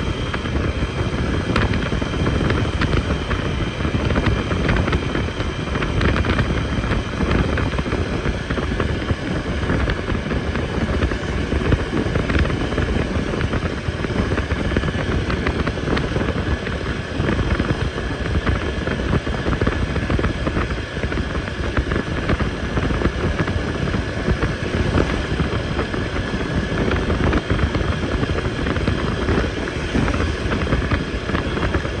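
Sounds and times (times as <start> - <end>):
motorcycle engine running: 0.0 - 32.0
wind buffeting microphone: 0.0 - 32.0.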